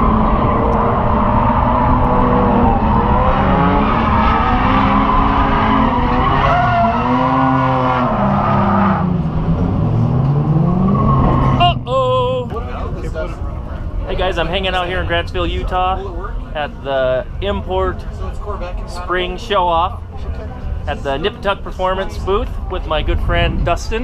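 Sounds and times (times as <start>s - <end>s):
car tyres squealing: 0.0s - 11.9s.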